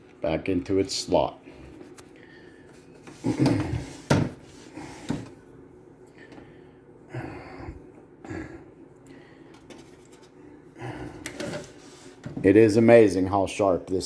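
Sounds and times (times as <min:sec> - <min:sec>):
soft rustling and scraping: 0:09.6 - 0:10.5, 0:11.3 - 0:12.7.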